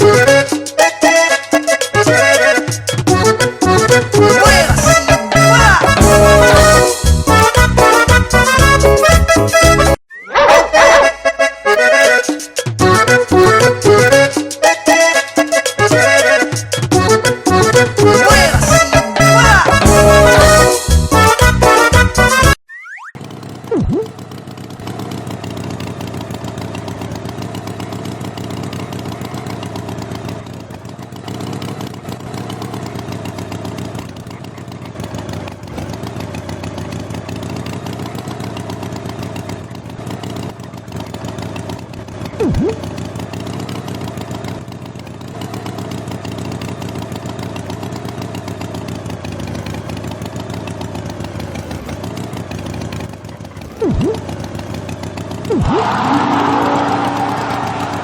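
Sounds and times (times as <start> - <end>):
motor engine running: 0.0 - 10.0, 10.8 - 22.6, 23.2 - 58.0
springy boing sound effect: 10.1 - 11.2, 22.7 - 24.2, 42.4 - 42.8, 53.8 - 54.3, 55.5 - 57.1.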